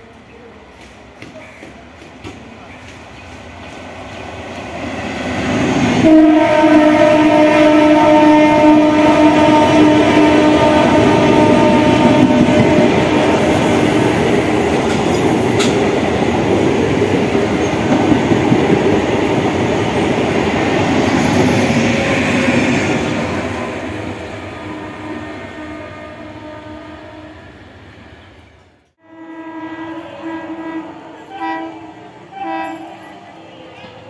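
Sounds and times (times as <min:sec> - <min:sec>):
train horn blasts: 0:05.9 - 0:13.8, 0:21.9 - 0:27.6, 0:29.0 - 0:33.4
train wheels clattering over joints: 0:14.7 - 0:16.2.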